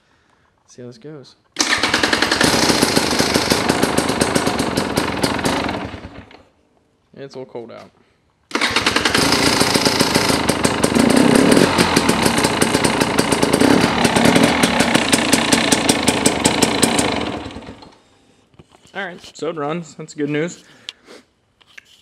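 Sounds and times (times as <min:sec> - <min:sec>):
two-stroke dirt bike engine running: 0:01.6 - 0:06.4, 0:08.5 - 0:18.0.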